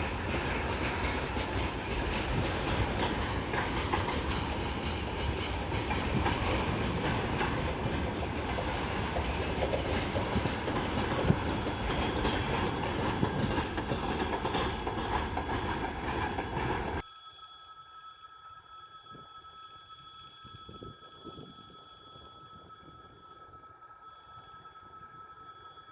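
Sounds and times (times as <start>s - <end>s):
train wheels clattering on rails: 0.0s - 17.0s
faint steady tones: 16.2s - 25.9s.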